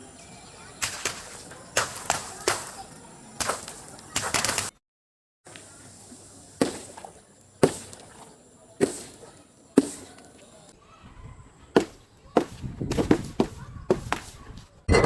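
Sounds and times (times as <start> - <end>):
sharp smashing cracks: 0.8 - 4.7.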